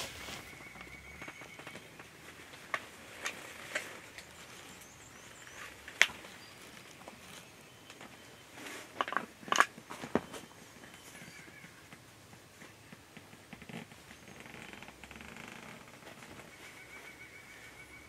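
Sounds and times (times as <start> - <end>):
footsteps crunching dry leaves: 0.0 - 0.6.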